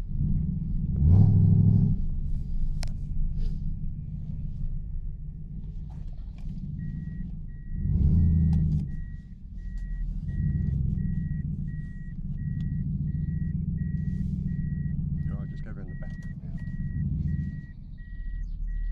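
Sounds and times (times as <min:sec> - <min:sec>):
car engine rumbling and revving: 0:00.0 - 0:18.9
electronic reversing beep: 0:06.7 - 0:18.9.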